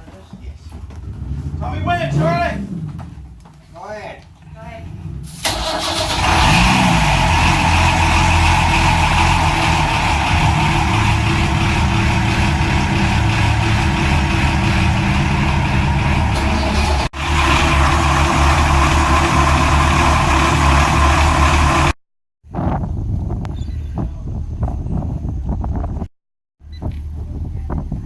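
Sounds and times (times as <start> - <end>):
boat engine running: 6.3 - 22.0.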